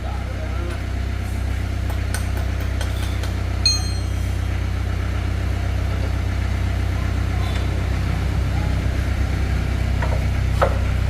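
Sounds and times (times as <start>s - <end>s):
engine idling: 0.0s - 11.0s
ringing metal clink: 3.6s - 4.3s.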